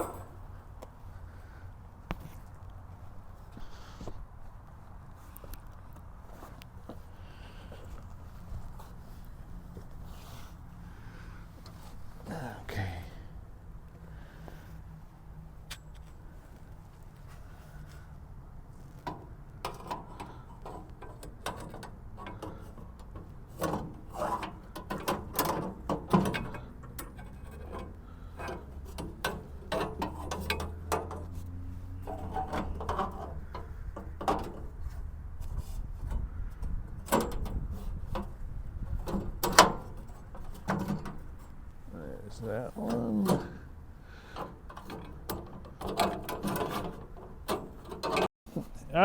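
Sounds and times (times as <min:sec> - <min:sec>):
metal parts knocking and clanking: 0:19.6 - 0:31.3, 0:32.0 - 0:34.8, 0:36.7 - 0:41.6, 0:44.4 - 0:48.3.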